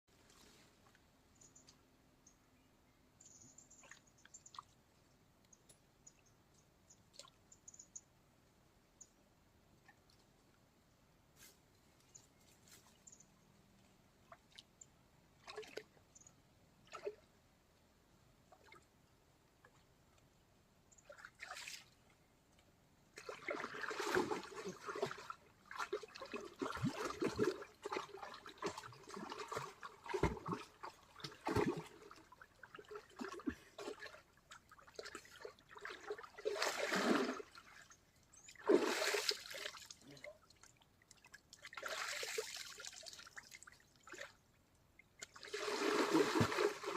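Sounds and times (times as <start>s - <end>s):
water splashing and sloshing: 13.8s - 16.1s, 16.8s - 17.4s, 21.0s - 22.2s, 23.1s - 46.9s.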